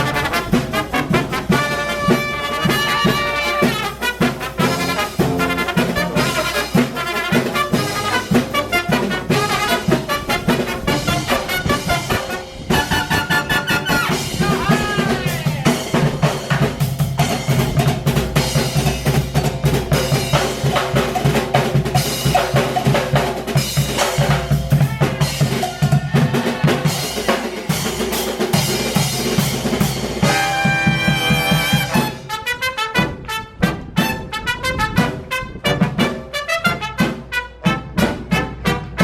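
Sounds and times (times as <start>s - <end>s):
brass horns holding chords: 0.0s - 14.7s
fast dense drumming: 0.0s - 30.4s.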